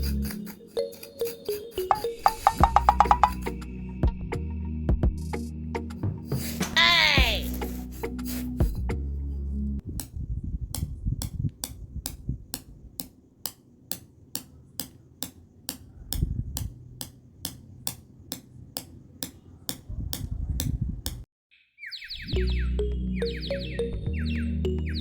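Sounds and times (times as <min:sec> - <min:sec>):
sharp tapping knocks: 0:01.8 - 0:03.6, 0:09.9 - 0:21.3.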